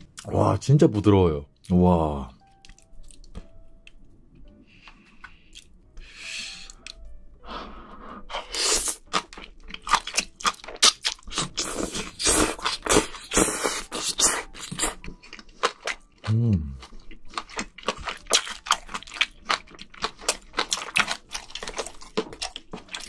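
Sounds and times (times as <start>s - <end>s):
wet sticky chewing: 8.4s - 23.0s.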